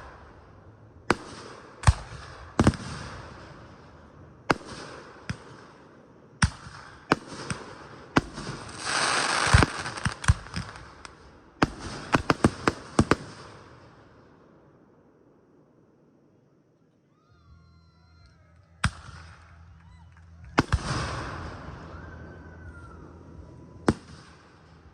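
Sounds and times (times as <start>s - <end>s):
fireworks bangs: 0.0s - 14.0s, 20.5s - 24.9s
fireworks crackle: 6.4s - 13.9s.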